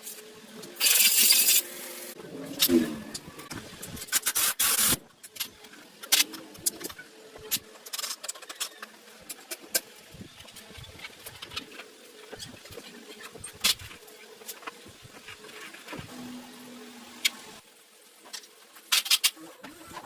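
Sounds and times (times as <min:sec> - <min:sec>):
hand tools clicking and scraping: 0:02.5 - 0:16.0.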